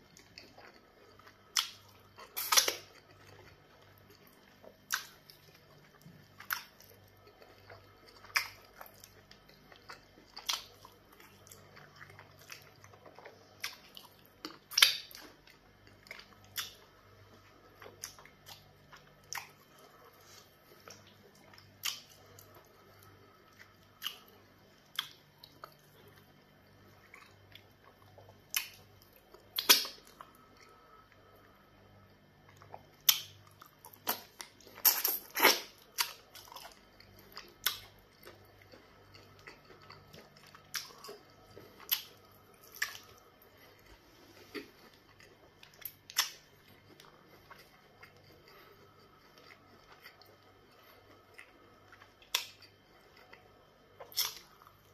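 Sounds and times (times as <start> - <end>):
chewing with wet smacks: 0.0 - 54.9
meat being bitten and torn: 1.3 - 4.1, 4.7 - 16.8, 27.1 - 30.4, 31.8 - 54.9.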